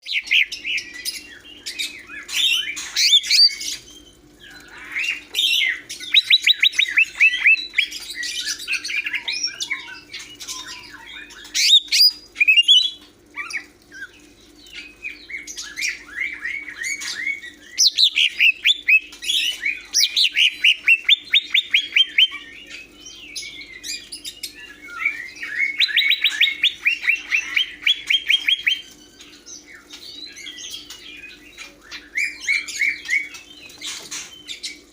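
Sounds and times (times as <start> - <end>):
bird singing whistled notes: 5.1 - 13.0, 14.8 - 33.7.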